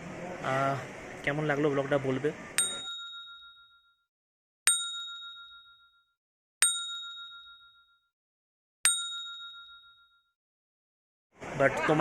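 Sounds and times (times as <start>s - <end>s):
small metal bell ding: 2.6s - 4.1s, 4.7s - 8.1s, 8.9s - 10.4s.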